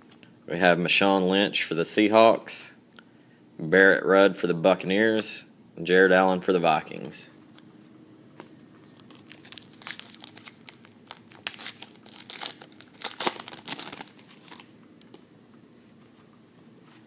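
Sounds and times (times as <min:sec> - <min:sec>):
foil wrapper tearing and crinkling: 0:08.9 - 0:14.7.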